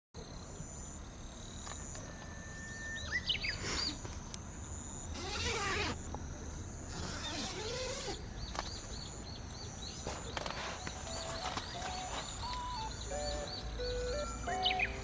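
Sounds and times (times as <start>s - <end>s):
soft music notes: 10.8s - 15.0s
rapid high chirps: 10.9s - 15.0s.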